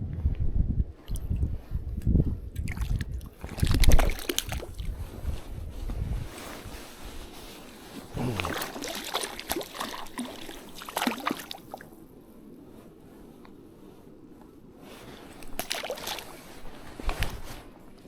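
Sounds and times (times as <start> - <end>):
water splashing and sloshing: 2.5 - 5.5, 6.3 - 12.0, 14.8 - 17.8.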